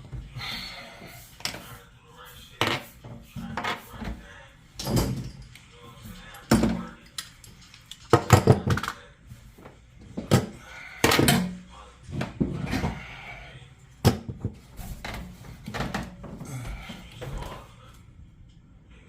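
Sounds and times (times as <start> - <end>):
knocks and clatters of handling: 4.8 - 9.0, 14.0 - 17.6.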